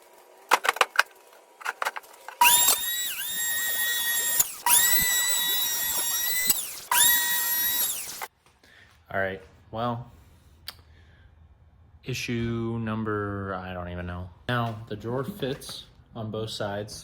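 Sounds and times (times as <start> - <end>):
electric hand planer whining: 2.4 - 8.3.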